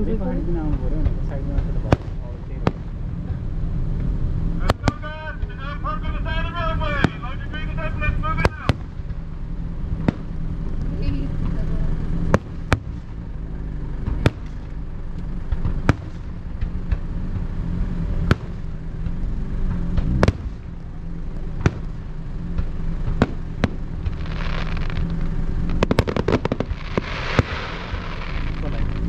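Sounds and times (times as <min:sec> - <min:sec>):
steady low rumble: 0:00.0 - 0:29.0
crackling firework pops: 0:00.7 - 0:03.0, 0:08.4 - 0:09.3, 0:09.9 - 0:11.6, 0:12.3 - 0:13.3, 0:14.0 - 0:17.6, 0:18.2 - 0:29.0
firework shells bursting with bangs: 0:00.7 - 0:29.0.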